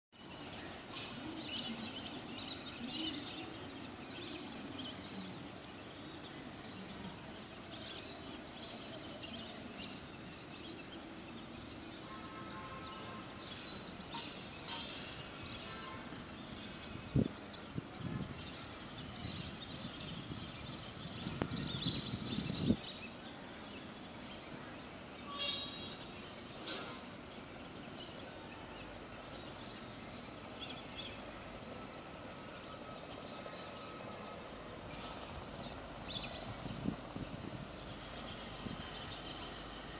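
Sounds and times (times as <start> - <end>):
outdoor background noise: 0.1 - 39.9
birds chirping and whistling: 13.4 - 24.6, 25.2 - 26.8, 32.3 - 37.0.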